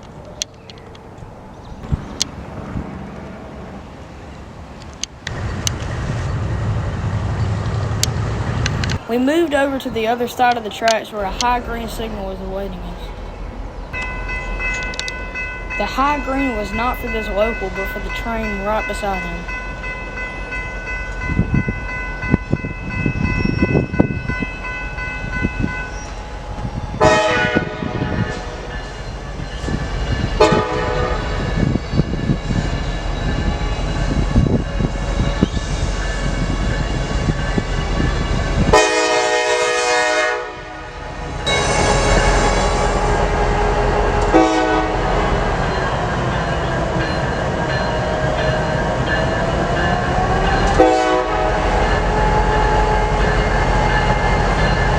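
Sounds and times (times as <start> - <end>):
passing train rumble: 0.0 - 54.9
locomotive horn blasts: 27.0 - 28.6, 30.4 - 31.7, 38.7 - 45.6, 50.6 - 53.5.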